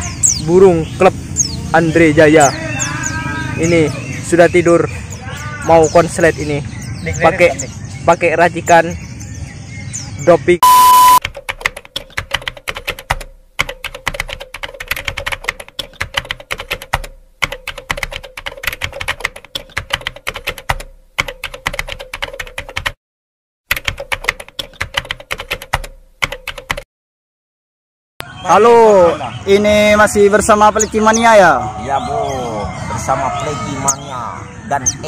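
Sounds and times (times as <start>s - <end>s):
rapid irregular clicking and tapping: 11.2s - 23.0s, 23.7s - 26.8s.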